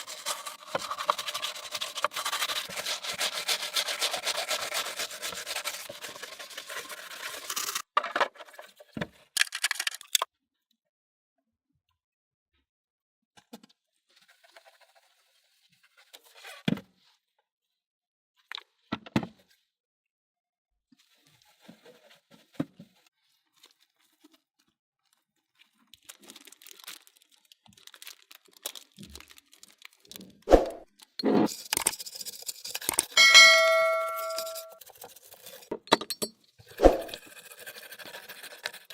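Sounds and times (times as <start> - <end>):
quick rubbing strokes on surface: 0.0 - 7.8, 36.8 - 38.9
crinkly scraping: 26.0 - 30.3
short scrapes and clicks: 36.7 - 38.9.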